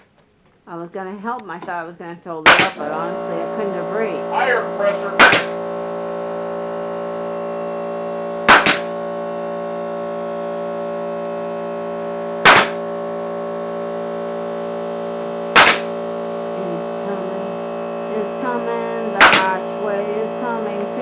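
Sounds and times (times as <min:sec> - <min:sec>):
air compressor humming: 0:02.4 - 0:21.0
nail gun firing into wood: 0:02.5 - 0:03.0, 0:05.2 - 0:05.6, 0:08.5 - 0:08.9, 0:12.4 - 0:12.8, 0:15.6 - 0:15.9, 0:19.2 - 0:19.6.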